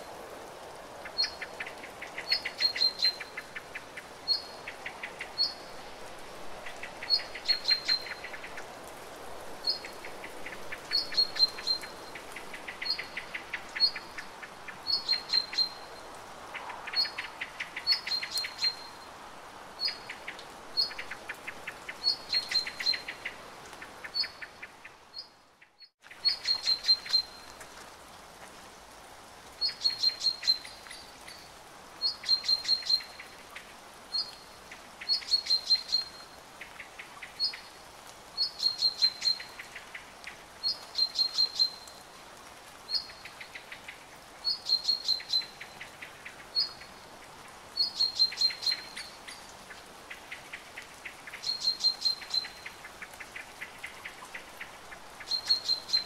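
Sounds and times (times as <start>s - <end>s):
rain hissing: 0.0s - 24.8s
songbird singing: 1.1s - 5.9s, 6.6s - 8.6s, 9.6s - 19.2s, 19.8s - 27.6s, 29.6s - 37.8s, 38.4s - 42.1s, 42.8s - 47.1s, 47.8s - 56.0s.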